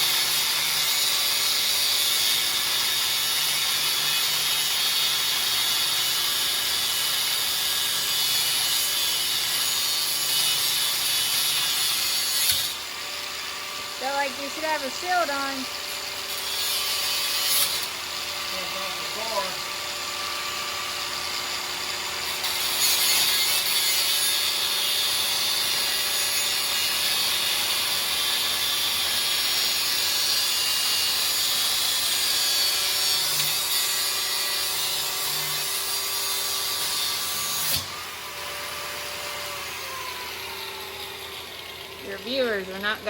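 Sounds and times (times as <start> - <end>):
grinder disc cutting metal: 0.0 - 43.0
angle grinder motor whine: 32.8 - 43.0.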